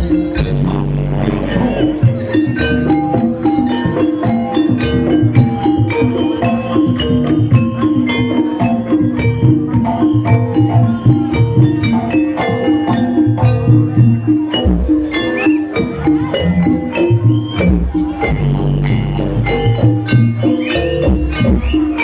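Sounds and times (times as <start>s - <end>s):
steady low drum beat: 0.0s - 8.1s, 15.8s - 22.0s
gamelan struck notes: 0.0s - 22.0s.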